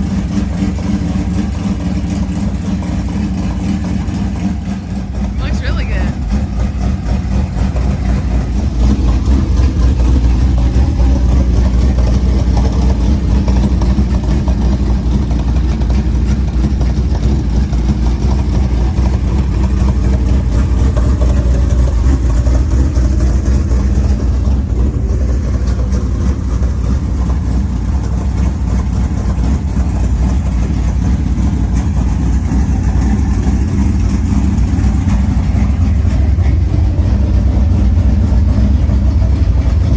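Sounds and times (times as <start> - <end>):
race car engine idling: 0.0 - 39.9.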